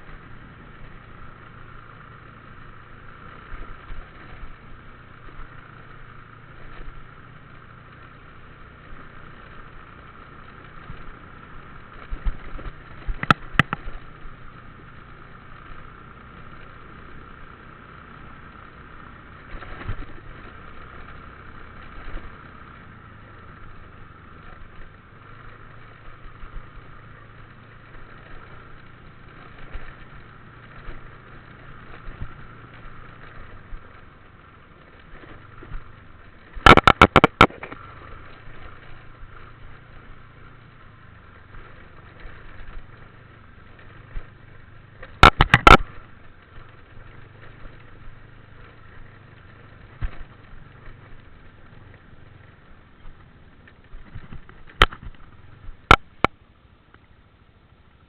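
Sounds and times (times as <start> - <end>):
small motorbike engine running: 0.0 - 58.0
loud rapid clatter: 36.6 - 37.8, 45.2 - 46.0.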